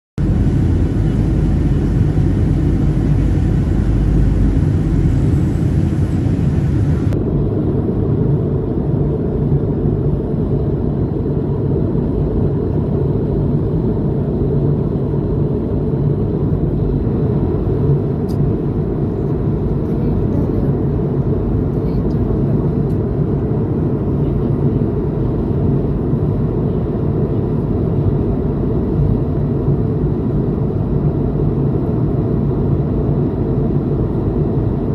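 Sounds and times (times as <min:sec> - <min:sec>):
moving vehicle rumble: 0:00.2 - 0:07.2.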